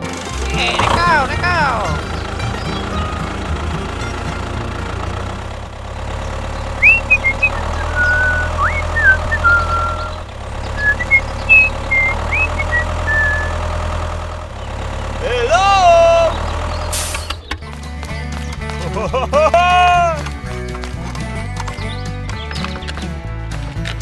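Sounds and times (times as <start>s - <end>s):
engine idling: 0.0s - 24.0s
short high chirps: 6.8s - 13.6s.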